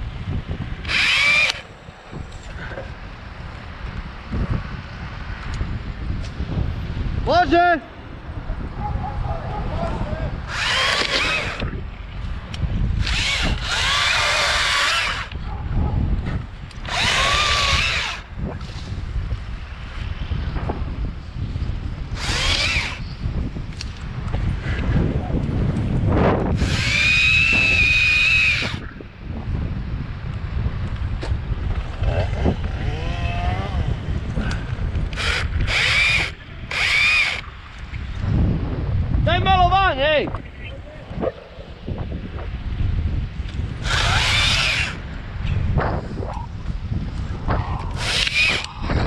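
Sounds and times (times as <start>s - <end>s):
wind rumbling on microphone: 0.0s - 49.0s
electric chainsaw whine: 0.8s - 1.7s, 10.5s - 11.8s, 13.0s - 15.4s, 16.8s - 18.3s, 22.1s - 23.2s, 26.5s - 28.9s, 35.0s - 37.5s, 43.8s - 45.1s, 47.9s - 48.8s.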